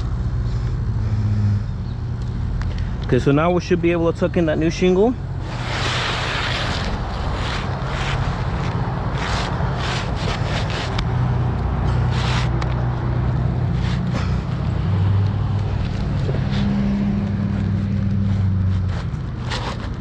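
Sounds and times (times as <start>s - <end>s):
low engine hum: 0.0s - 20.0s
short scrapes and clicks: 5.4s - 11.1s, 11.8s - 12.9s, 13.7s - 14.7s, 15.6s - 20.0s.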